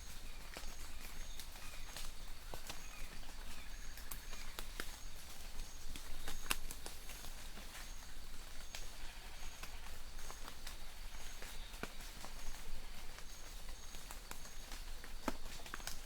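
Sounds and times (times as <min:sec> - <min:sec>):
soft rain hiss: 0:00.0 - 0:16.0
raindrops tapping: 0:11.4 - 0:16.0.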